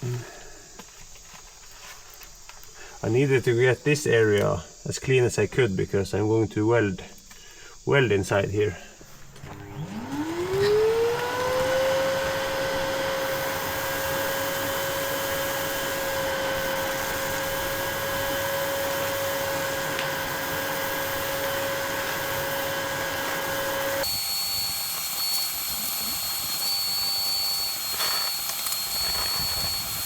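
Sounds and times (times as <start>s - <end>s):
vacuum cleaner motor whining: 9.0s - 30.0s.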